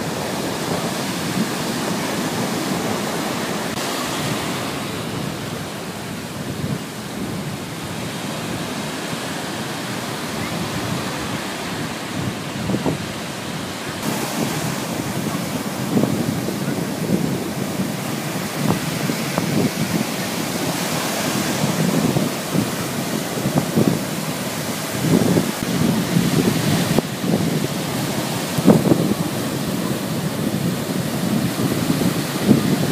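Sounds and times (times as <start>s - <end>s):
wind gusting across microphone: 0.0s - 32.9s.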